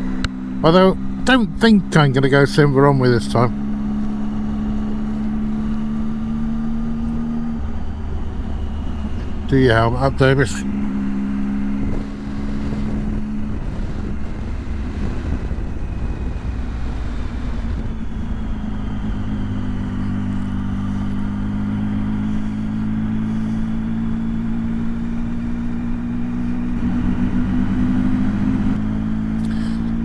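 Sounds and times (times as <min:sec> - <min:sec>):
motorcycle engine running: 0:00.0 - 0:30.0
wind rushing over microphone: 0:10.6 - 0:28.8.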